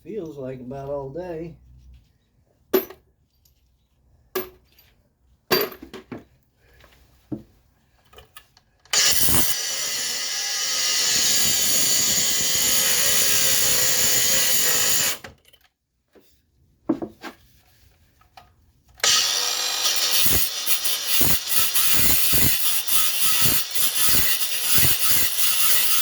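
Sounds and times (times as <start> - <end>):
power tool cutting metal: 8.9 - 15.3, 19.0 - 26.0.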